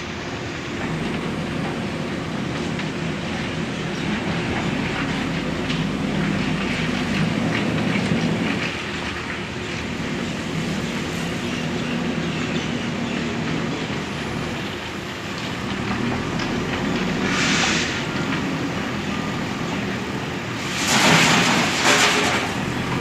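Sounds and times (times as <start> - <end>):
diesel engine running: 0.0 - 23.0
short burst of hiss: 17.3 - 18.0.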